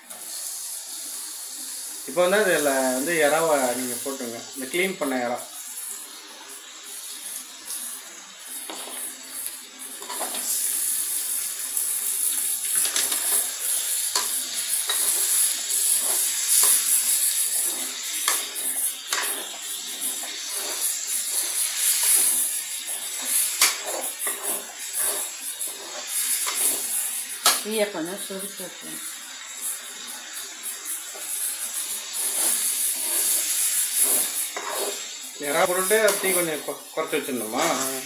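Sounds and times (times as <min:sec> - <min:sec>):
prawns sizzling in hot oil: 0:00.0 - 0:38.0
metal ladle scraping a pan: 0:10.0 - 0:10.6, 0:12.7 - 0:27.6, 0:32.1 - 0:35.2.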